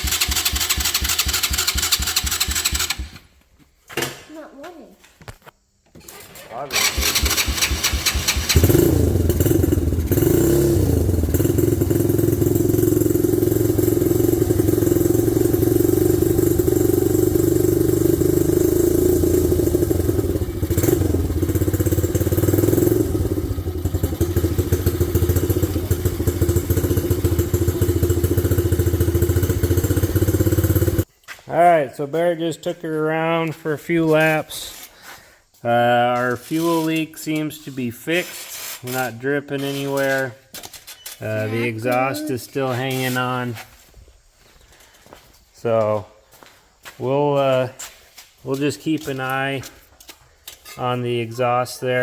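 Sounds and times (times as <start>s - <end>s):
atv engine cranking and running: 0.0s - 3.3s, 6.0s - 31.1s, 36.1s - 43.4s.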